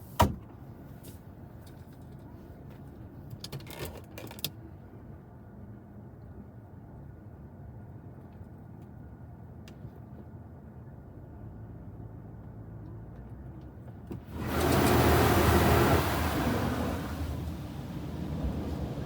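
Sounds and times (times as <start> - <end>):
high-pressure water spray hitting car: 14.2 - 19.0.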